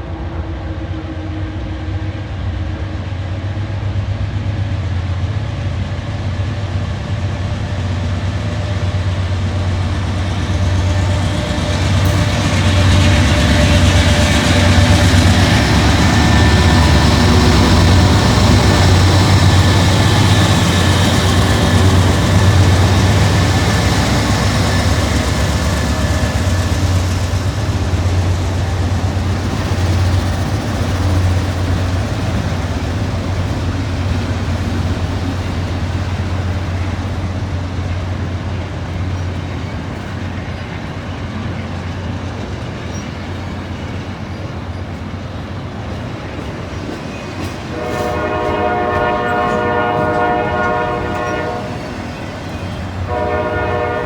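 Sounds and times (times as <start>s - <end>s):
freight train wheels rumbling: 0.0s - 54.0s
train horn: 47.7s - 54.0s.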